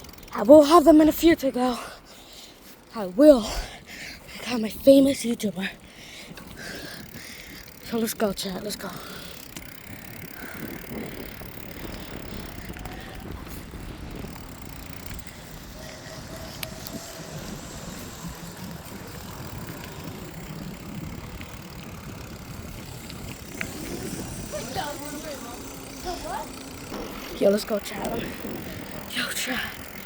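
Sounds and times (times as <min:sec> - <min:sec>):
bicycle tyres rolling on pavement: 0:00.0 - 0:30.0
wind noise on microphone: 0:09.2 - 0:25.0, 0:26.8 - 0:30.0.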